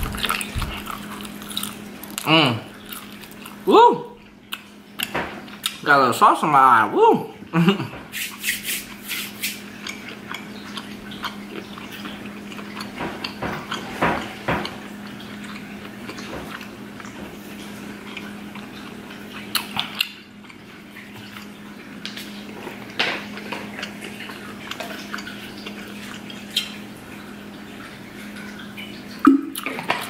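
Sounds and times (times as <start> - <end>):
wet chewing mouth clicks: 0.0 - 3.6, 8.1 - 17.2, 18.0 - 20.6
low steady hum: 0.0 - 30.0.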